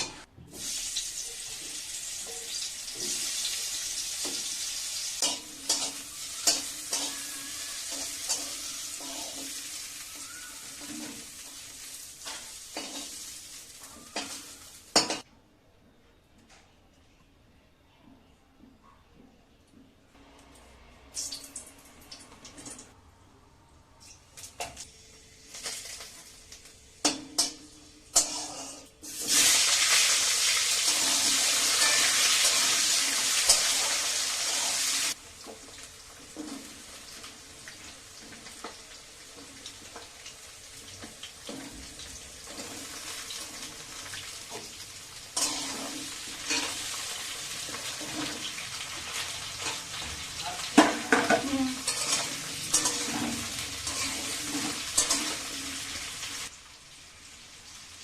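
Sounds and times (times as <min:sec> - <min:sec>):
pan sizzling: 0:00.0 - 0:15.2, 0:24.4 - 0:58.0
spoon clattering on pan: 0:05.2 - 0:09.2, 0:14.0 - 0:15.3, 0:49.6 - 0:55.4
utensils knocking against pan: 0:50.4 - 0:55.4.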